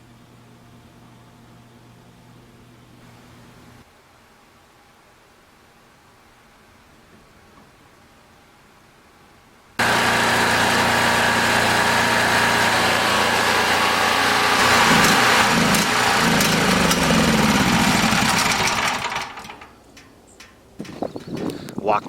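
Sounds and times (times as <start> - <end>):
generator engine running: 9.8 - 19.8.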